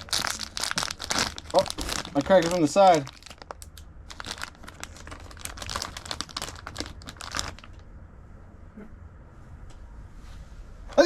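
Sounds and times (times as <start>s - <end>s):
packaging crinkling and rustling: 0.0s - 7.8s.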